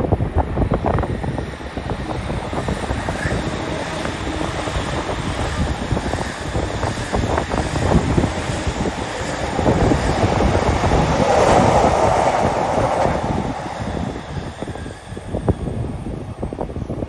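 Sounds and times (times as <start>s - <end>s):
train wheels rumbling on rails: 0.0s - 17.0s
wind buffeting microphone: 0.0s - 17.0s.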